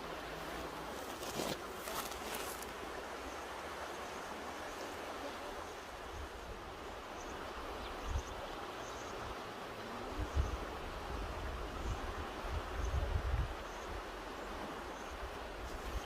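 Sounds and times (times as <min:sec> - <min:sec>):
river rushing: 0:00.0 - 0:16.0
wind buffet on microphone: 0:10.1 - 0:13.6.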